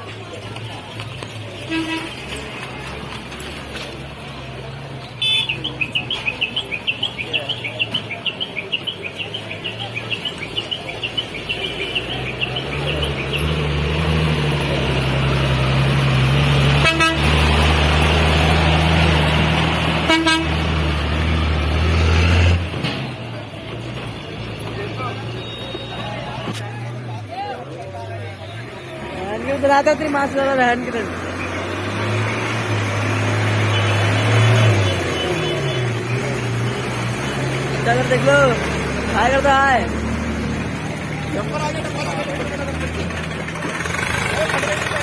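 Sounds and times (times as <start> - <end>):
truck engine running: 0.0 - 45.0
truck horn tooting: 1.6 - 2.4, 5.2 - 5.8, 16.6 - 17.8, 20.0 - 20.9, 25.1 - 26.6, 33.4 - 36.3.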